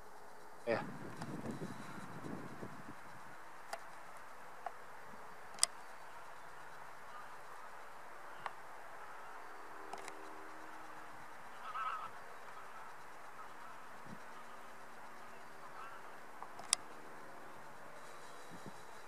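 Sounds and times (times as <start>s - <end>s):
faint outdoor hiss: 0.0s - 19.0s
sharp clicks: 5.5s - 5.9s, 9.9s - 10.3s, 16.4s - 17.0s.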